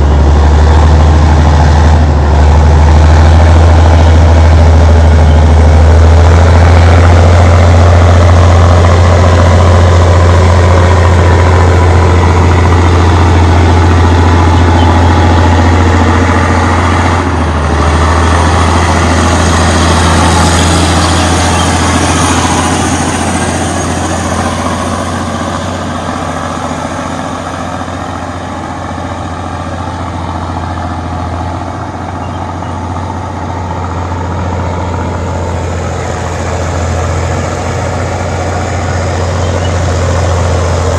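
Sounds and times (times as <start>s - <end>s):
bulldozer diesel engine droning: 0.0s - 40.9s.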